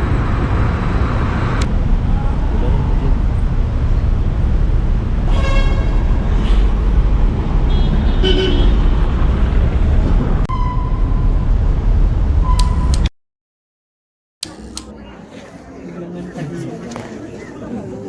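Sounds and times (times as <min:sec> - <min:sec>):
street traffic rumbling: 0:00.0 - 0:13.1, 0:14.4 - 0:18.0
car horns: 0:05.3 - 0:06.8, 0:07.6 - 0:09.2.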